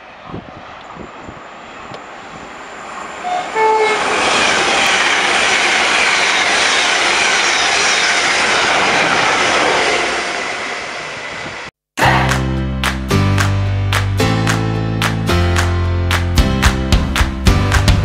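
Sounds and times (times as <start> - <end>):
train passing at speed: 0.0 - 12.4
two-note train horn: 3.2 - 4.2.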